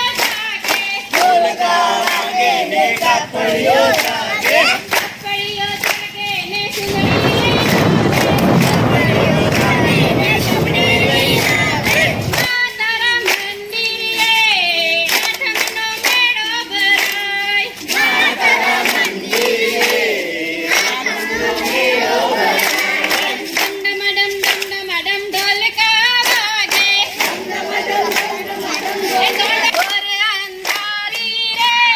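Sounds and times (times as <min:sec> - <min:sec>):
group of voices singing: 0:00.7 - 0:12.5, 0:17.8 - 0:23.8, 0:26.7 - 0:29.8.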